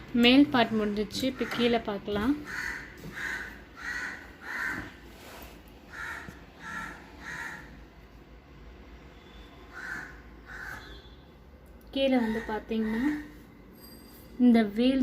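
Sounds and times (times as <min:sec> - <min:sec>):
harsh bird calls: 0:02.4 - 0:05.0, 0:05.9 - 0:07.9, 0:09.2 - 0:11.2.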